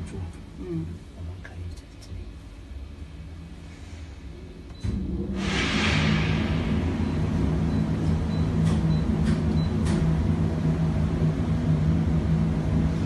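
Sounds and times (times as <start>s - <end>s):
generator droning: 4.3s - 13.0s.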